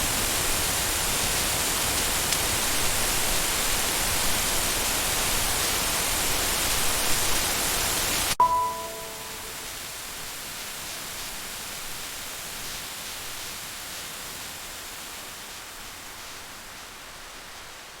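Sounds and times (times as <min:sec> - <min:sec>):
steady rain hiss: 0:00.0 - 0:08.4, 0:09.2 - 0:18.0.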